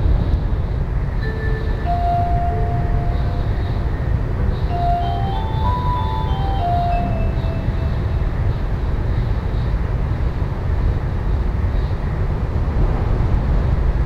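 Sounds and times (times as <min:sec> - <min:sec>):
train cabin rumble: 0:00.0 - 0:14.0
onboard chime: 0:01.2 - 0:08.5.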